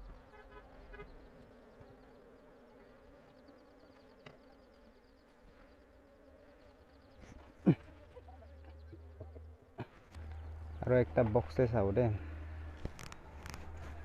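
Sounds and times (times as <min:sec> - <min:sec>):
faint buzzing of bees: 0:00.0 - 0:14.0.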